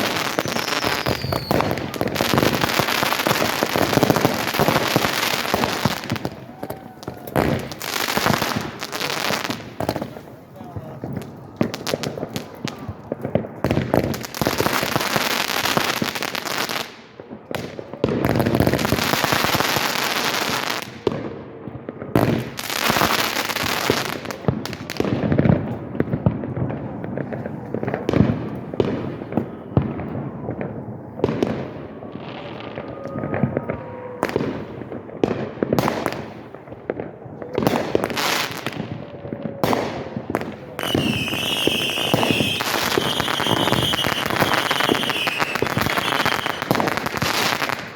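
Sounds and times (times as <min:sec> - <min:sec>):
firework whistles: 0:00.0 - 0:08.7, 0:39.6 - 0:47.9
firework bangs and booms: 0:00.0 - 0:47.9
firework crackling: 0:00.0 - 0:47.9
steady high whistle: 0:00.4 - 0:01.6, 0:40.8 - 0:46.7.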